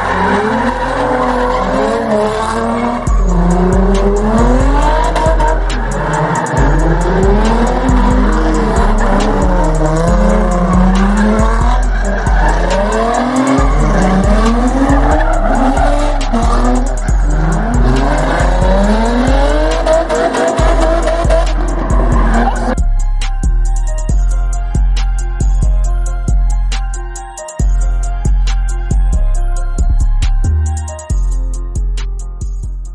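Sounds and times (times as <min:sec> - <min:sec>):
engine revving: 0:00.0 - 0:22.8
tyre squeal: 0:00.0 - 0:22.8
heavy bass music: 0:00.0 - 0:32.9.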